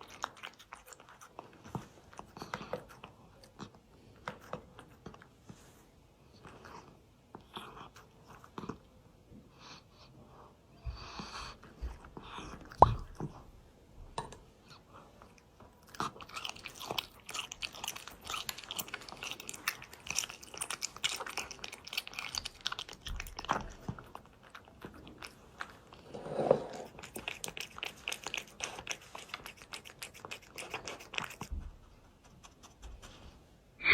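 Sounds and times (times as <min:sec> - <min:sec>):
cat crunching dry food: 0:00.0 - 0:05.1, 0:15.3 - 0:31.5.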